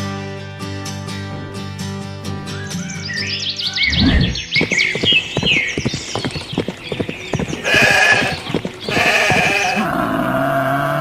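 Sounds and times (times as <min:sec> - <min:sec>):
bleating calls: 0:06.0 - 0:09.9.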